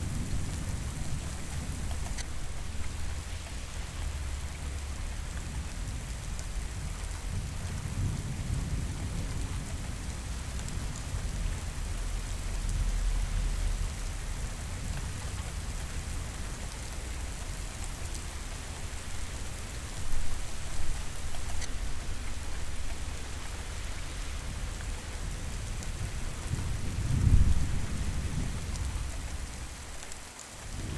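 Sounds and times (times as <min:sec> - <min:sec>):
low rolling thunder: 0:00.0 - 0:11.8, 0:24.4 - 0:29.9, 0:30.6 - 0:30.9
steady rain: 0:00.0 - 0:30.9.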